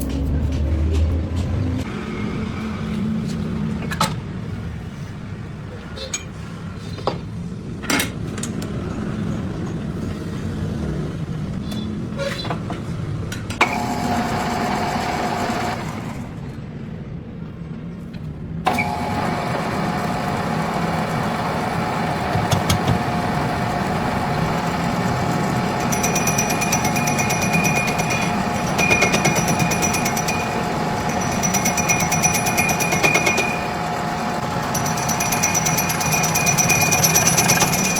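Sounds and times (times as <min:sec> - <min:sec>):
machine motor humming: 0:18.7 - 0:37.9.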